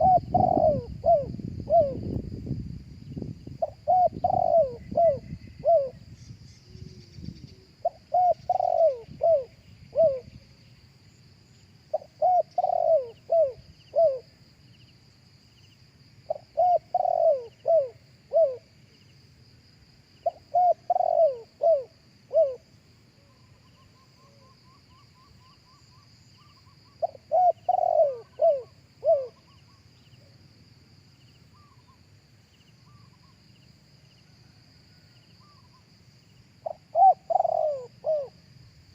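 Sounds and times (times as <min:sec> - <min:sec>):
dove cooing: 0:00.0 - 0:02.2, 0:03.6 - 0:06.0, 0:06.7 - 0:10.4, 0:11.9 - 0:14.3, 0:16.3 - 0:18.7, 0:20.2 - 0:22.7, 0:26.4 - 0:29.8, 0:36.6 - 0:38.4.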